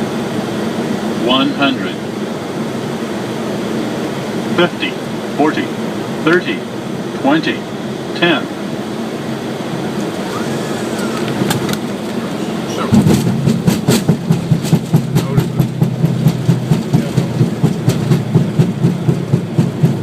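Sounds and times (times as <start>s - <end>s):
airflow noise: 0.0s - 20.0s
wheels rumbling on runway: 0.0s - 20.0s
tyres thumping over rough surface: 12.8s - 20.0s.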